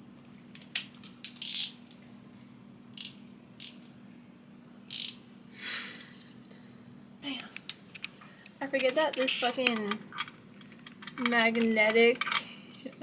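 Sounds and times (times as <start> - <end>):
ratchet wrench clicking: 1.2 - 1.8, 3.0 - 3.8, 4.9 - 5.2.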